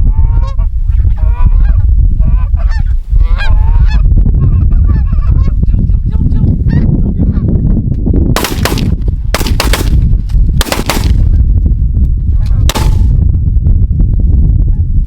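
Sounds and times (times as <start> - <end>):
wind rumble on microphone: 0.0 - 15.0
shotgun shots: 8.4 - 11.4, 12.7 - 13.2.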